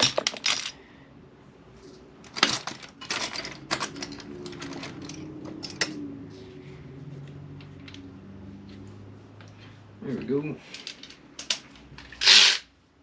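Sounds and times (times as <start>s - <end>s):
metal clicks and clatter: 2.2s - 6.0s, 10.7s - 12.5s.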